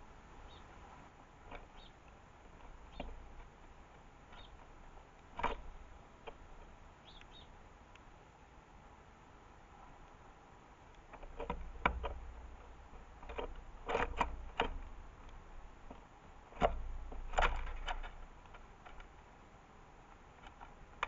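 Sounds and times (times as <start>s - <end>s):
bird pecking on feeder: 10.9s - 19.1s.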